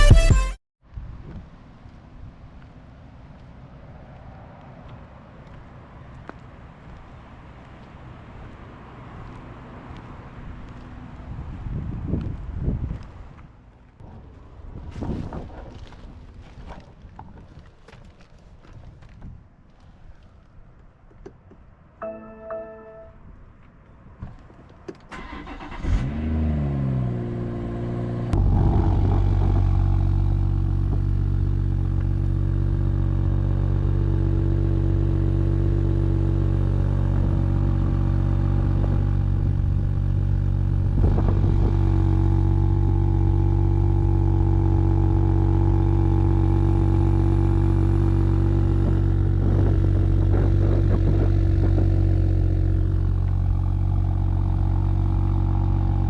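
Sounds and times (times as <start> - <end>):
car engine starting and idling: 24.9 - 56.0.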